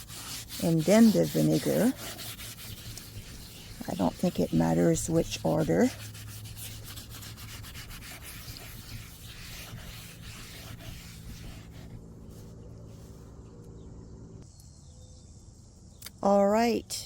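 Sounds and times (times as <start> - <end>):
steel wool pad scrubbing basin: 0.0 - 12.5.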